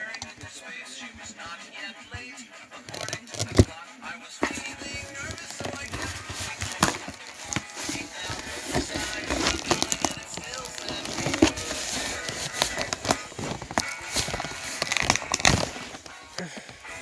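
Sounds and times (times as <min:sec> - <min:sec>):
packaging crinkling and rustling: 0:02.9 - 0:03.7, 0:04.4 - 0:17.0.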